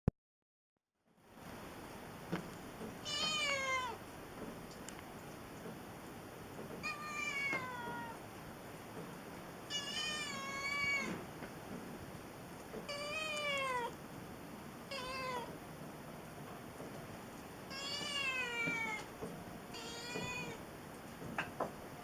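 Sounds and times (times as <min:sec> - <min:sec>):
cat meowing: 0:03.0 - 0:04.0, 0:06.8 - 0:08.2, 0:09.7 - 0:11.2, 0:12.8 - 0:14.0, 0:14.9 - 0:15.6, 0:17.7 - 0:19.1, 0:19.7 - 0:20.6.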